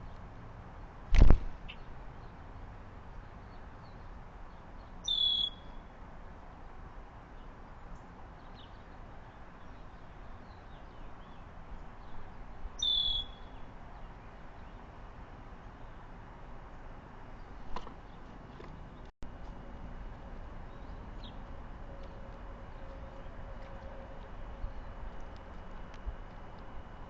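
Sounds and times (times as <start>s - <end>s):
bird short high calls: 5.0s - 5.8s, 12.8s - 13.6s
faint bird chirps: 5.0s - 5.9s, 12.8s - 13.6s.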